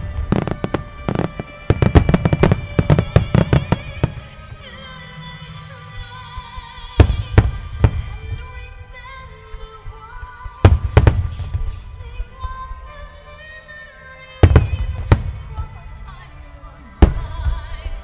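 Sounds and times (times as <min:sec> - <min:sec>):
fireworks booming: 0:00.0 - 0:04.7, 0:07.0 - 0:08.7, 0:10.6 - 0:12.6, 0:14.4 - 0:15.7, 0:17.0 - 0:17.9
music: 0:00.0 - 0:18.0.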